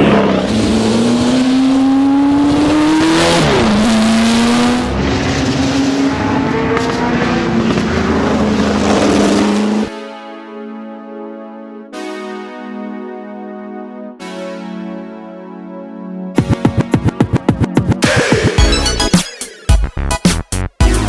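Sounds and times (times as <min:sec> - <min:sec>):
racing engine at full throttle: 0:00.0 - 0:09.9.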